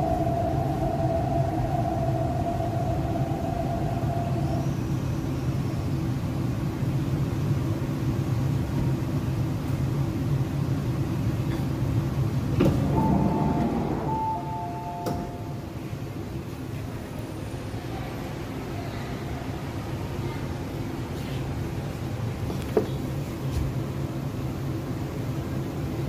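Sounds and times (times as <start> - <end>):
level whine: 0.0 - 6.5, 12.6 - 16.4
train running rumble: 0.0 - 26.0
short two-tone beeping: 13.0 - 15.6.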